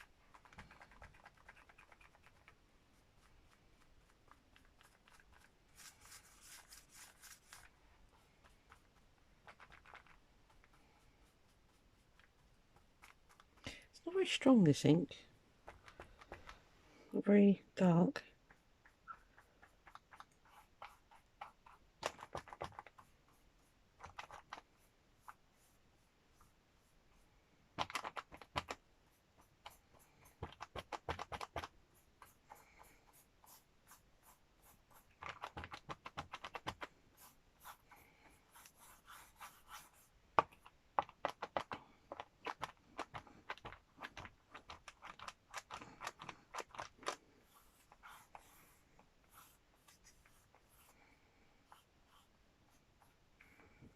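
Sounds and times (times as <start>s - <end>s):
ink dabbing taps and scratches: 18.4s - 25.7s, 27.8s - 51.0s.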